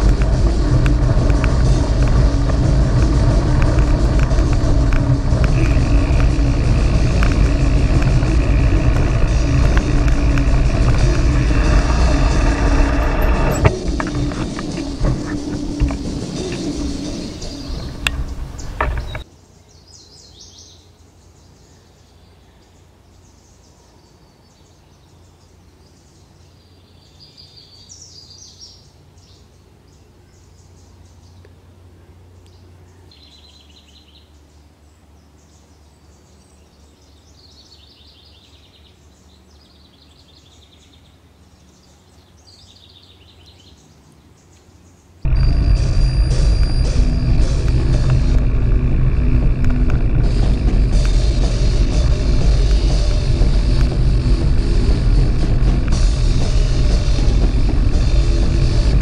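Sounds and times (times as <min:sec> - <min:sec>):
faint low hum: 0:00.0 - 0:19.8, 0:38.6 - 0:59.0
small birds chirping: 0:13.8 - 0:47.9.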